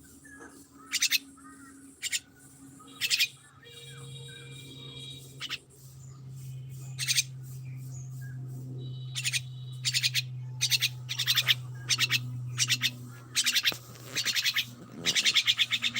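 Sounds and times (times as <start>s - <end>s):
steady low hum: 0.0s - 15.9s
bird high rapid chirps: 0.1s - 15.9s.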